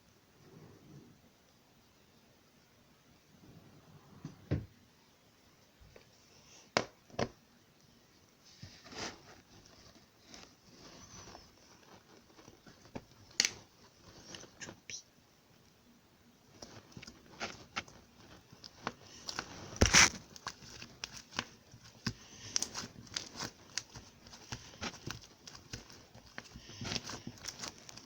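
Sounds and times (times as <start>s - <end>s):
rustling handling noise: 8.3s - 14.9s, 16.4s - 28.0s.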